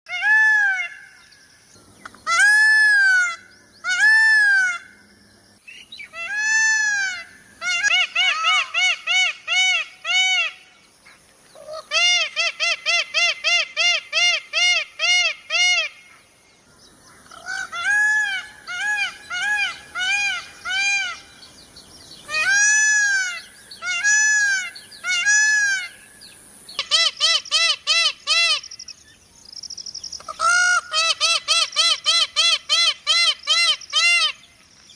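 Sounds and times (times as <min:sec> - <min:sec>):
peacock honking calls: 0:06.1 - 0:10.7, 0:22.3 - 0:26.1, 0:26.8 - 0:28.8, 0:30.3 - 0:34.5.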